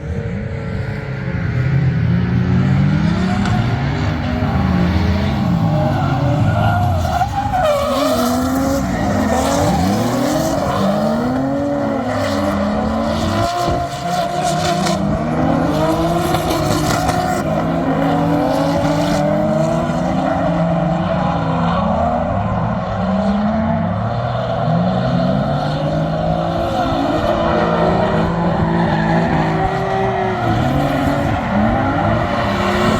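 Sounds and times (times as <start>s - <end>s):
car engine revving hard: 1.3s - 32.9s
tyres skidding: 1.5s - 24.1s.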